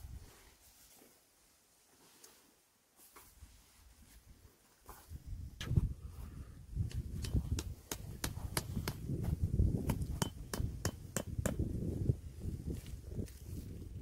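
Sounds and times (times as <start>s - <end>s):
tent pegs hammered in: 6.9s - 9.1s, 9.8s - 11.6s.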